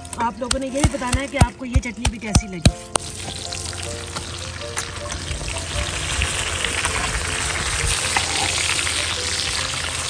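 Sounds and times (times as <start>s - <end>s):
hot oil sizzling and crackling: 2.3s - 10.0s.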